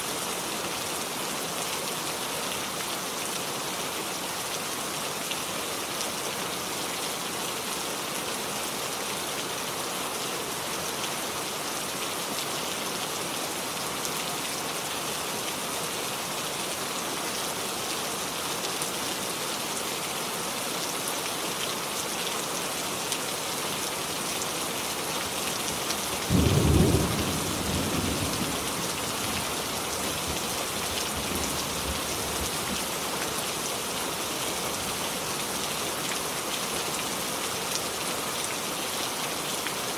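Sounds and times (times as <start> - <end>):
steady rain falling: 0.0 - 39.9
low rumble of thunder: 26.3 - 30.5.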